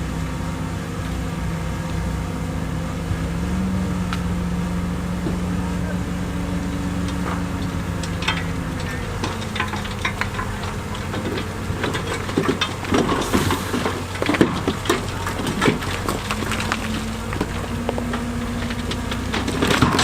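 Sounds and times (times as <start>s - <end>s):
heavy diesel machinery running: 0.0s - 20.0s
stones clattering: 6.7s - 20.0s.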